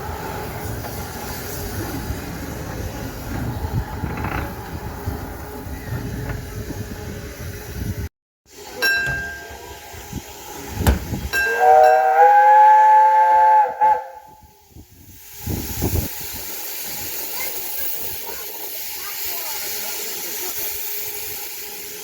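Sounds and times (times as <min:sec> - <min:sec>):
miniature train rumbling on rails: 0:00.0 - 0:22.0
steam whistle blast: 0:11.4 - 0:14.6.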